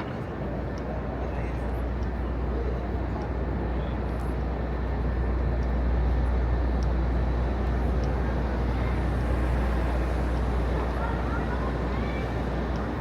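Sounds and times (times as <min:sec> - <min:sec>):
traffic noise: 0:04.7 - 0:13.0.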